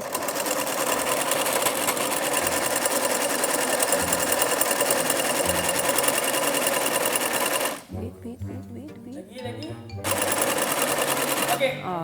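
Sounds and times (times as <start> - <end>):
sewing machine stitching fast: 0.0 - 7.9, 10.0 - 11.7.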